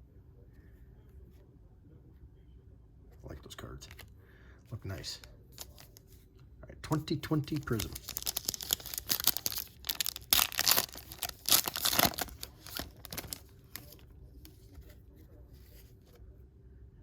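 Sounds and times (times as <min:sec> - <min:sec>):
loud wrapper rips: 0:07.5 - 0:14.0
wrapper tearing and crinkling: 0:07.5 - 0:14.0.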